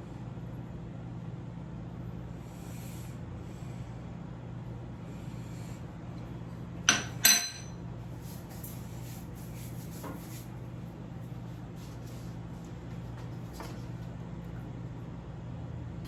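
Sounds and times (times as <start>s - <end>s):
metallic clanks of cookware: 6.9s - 7.8s.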